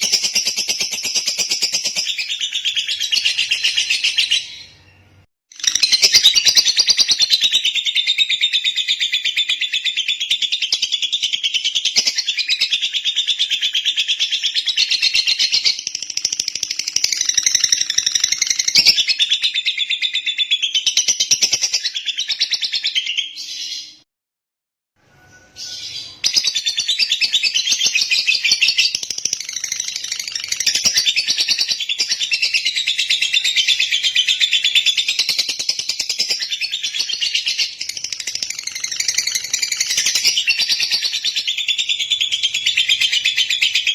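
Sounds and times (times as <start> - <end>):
lovebird chattering chirps: 11.4 - 19.4, 25.6 - 43.9.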